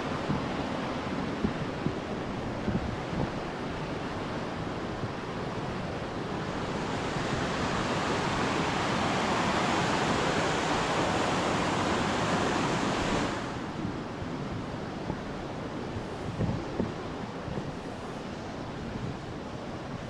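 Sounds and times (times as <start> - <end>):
stream water rushing: 5.8 - 13.9.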